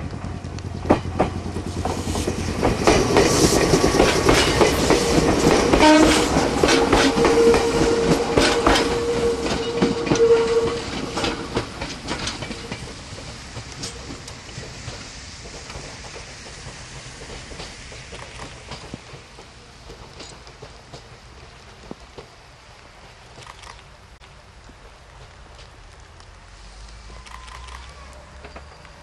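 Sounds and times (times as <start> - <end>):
train wheels clattering over joints: 0.0 - 23.8
brief horn note: 5.8 - 6.4, 7.0 - 10.8.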